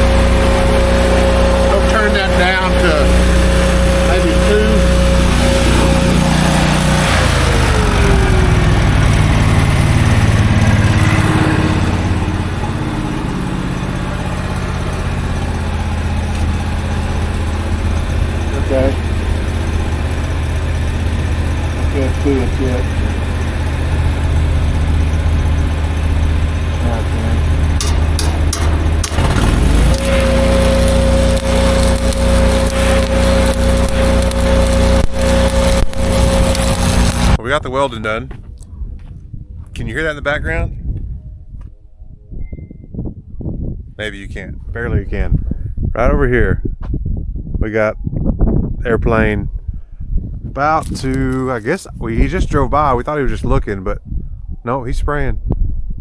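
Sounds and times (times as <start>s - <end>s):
arc welding crackling: 0.0s - 37.4s, 50.8s - 51.7s
engine running: 0.0s - 38.0s.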